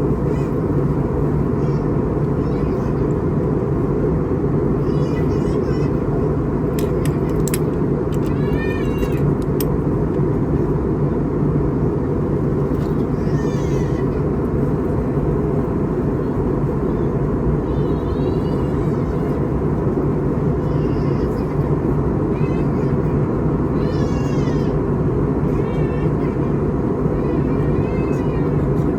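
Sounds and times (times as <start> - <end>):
airliner cabin hum: 0.0 - 28.9.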